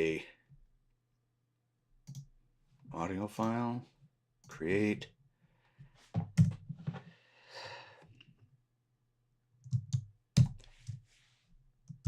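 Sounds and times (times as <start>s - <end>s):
computer mouse clicks: 2.1s - 2.3s.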